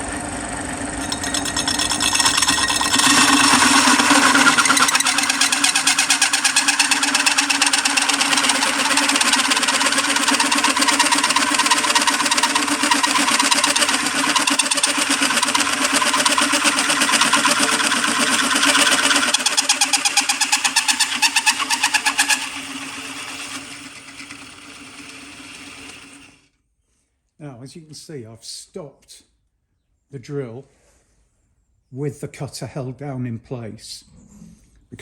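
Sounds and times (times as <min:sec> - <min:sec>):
drill motor hum: 0:00.0 - 0:26.4
hole cutter rasping through metal: 0:00.9 - 0:26.4.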